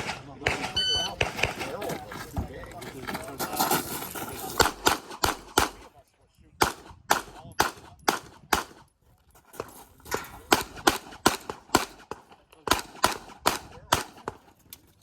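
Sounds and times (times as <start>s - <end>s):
handgun shots: 0.0s - 1.8s, 4.6s - 5.9s, 6.6s - 8.9s, 10.1s - 14.4s.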